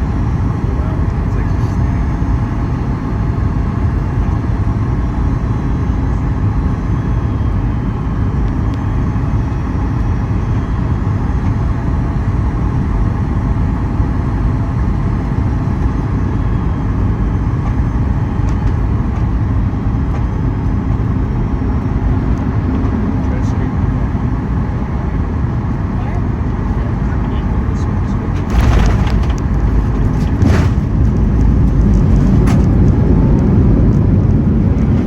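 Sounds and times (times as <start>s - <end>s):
airliner cabin engine rumble: 0.0s - 35.0s.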